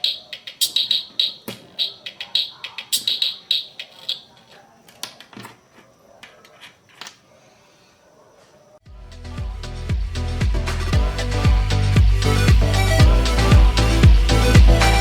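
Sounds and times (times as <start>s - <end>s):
toy organ high-pitched beeps: 0.0s - 4.3s.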